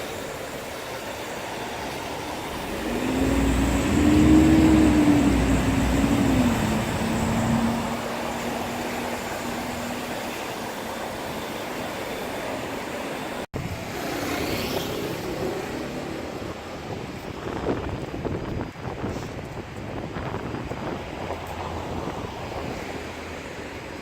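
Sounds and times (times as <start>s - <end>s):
street traffic noise: 0.0s - 24.0s
passing vehicle tone: 2.4s - 10.5s.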